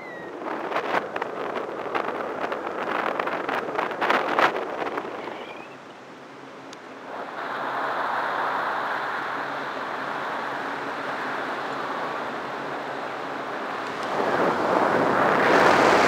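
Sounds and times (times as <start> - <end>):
air rushing past wing lines: 6.9 - 16.0.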